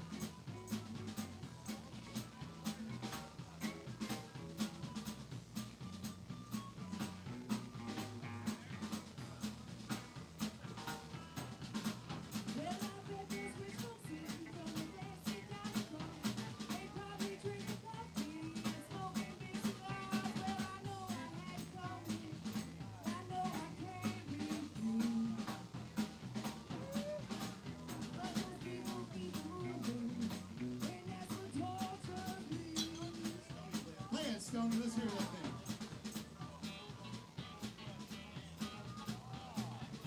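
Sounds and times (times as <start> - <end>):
drum kit beat: 0.0 - 40.0
live band playing: 0.0 - 40.0.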